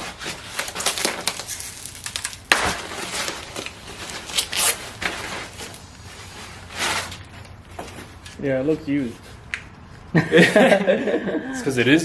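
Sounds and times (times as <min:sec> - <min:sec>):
car part rustling and clattering: 0:00.0 - 0:08.4.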